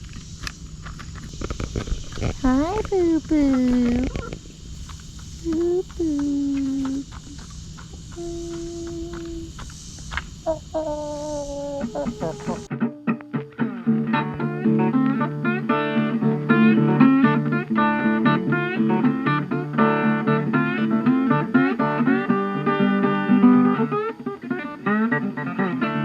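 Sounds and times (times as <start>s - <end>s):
acoustic guitar plucked and strummed: 11.7s - 26.0s.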